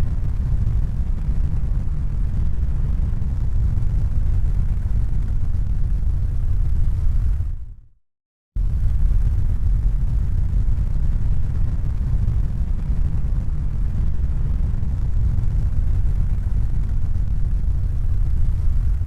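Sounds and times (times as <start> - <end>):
deep rumbling noise: 0.0 - 7.8, 8.6 - 19.0.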